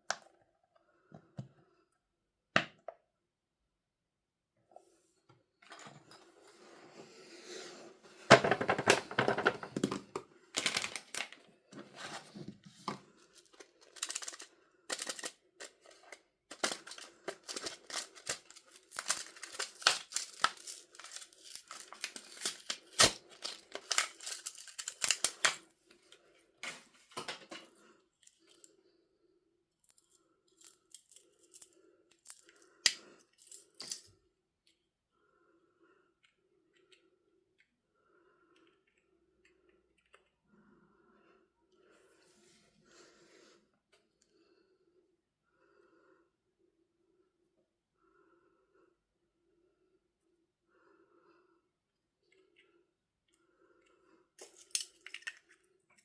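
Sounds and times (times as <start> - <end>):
packaging crinkling and tearing: 10.6 - 11.4, 13.4 - 25.6.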